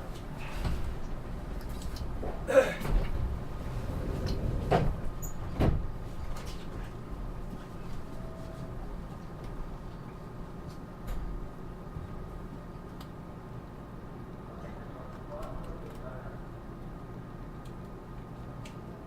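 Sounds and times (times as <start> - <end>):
train car rumble: 0.0 - 12.6.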